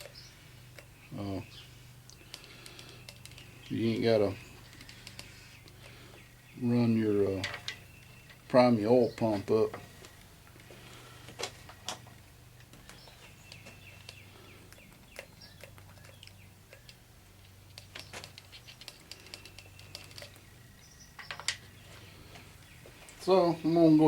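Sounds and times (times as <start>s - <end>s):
small ticks: 0.0s - 1.0s, 2.0s - 3.7s, 4.6s - 6.2s, 10.0s - 21.7s
faint steady hum: 0.0s - 24.0s.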